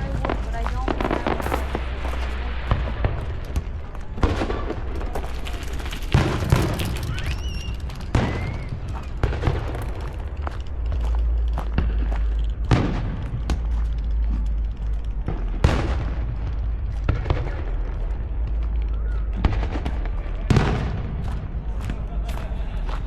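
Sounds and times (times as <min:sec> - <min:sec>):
firework shells booming: 0:00.0 - 0:13.7
crackling firework pops: 0:00.0 - 0:23.0
low rumble: 0:00.0 - 0:23.0.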